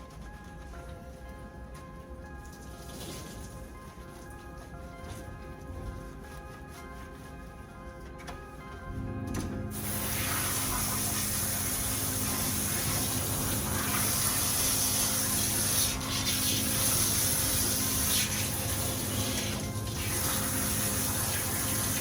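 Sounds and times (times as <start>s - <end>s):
water spraying from a hose: 9.7s - 22.0s.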